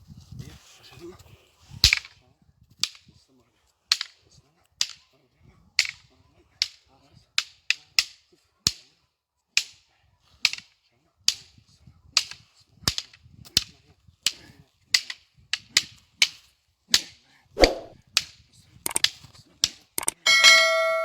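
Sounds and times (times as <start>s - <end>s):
wooden sticks clacking together: 1.8s - 2.2s, 2.8s - 3.1s, 3.9s - 5.1s, 5.7s - 8.9s, 9.6s - 20.7s.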